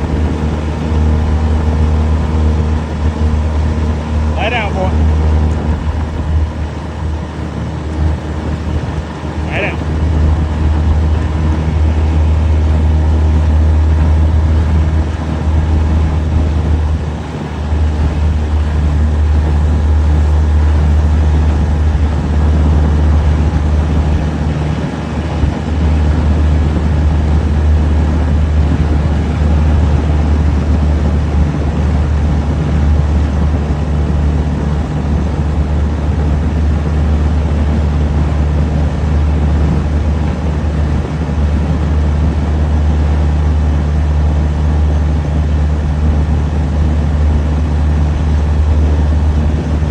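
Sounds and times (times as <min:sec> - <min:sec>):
boat motor humming: 0:00.0 - 0:49.9
hull rushing over water: 0:00.0 - 0:49.9.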